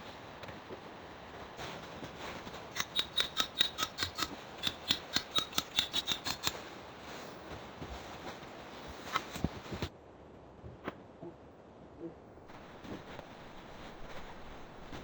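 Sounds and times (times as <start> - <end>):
sharp metallic clicks: 2.7 - 6.6.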